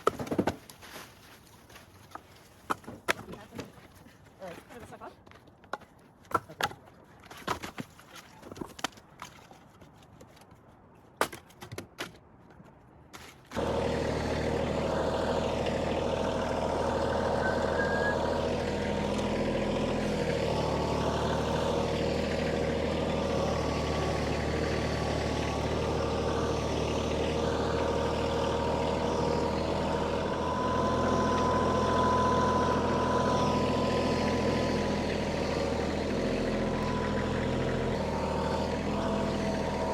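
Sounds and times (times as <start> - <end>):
tractor engine running: 13.5 - 39.9.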